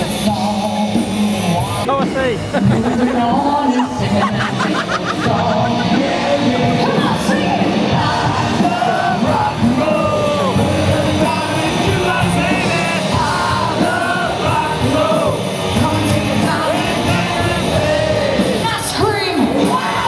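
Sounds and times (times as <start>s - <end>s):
loud rock music: 0.0s - 20.0s
voices singing and yelling: 0.0s - 20.0s.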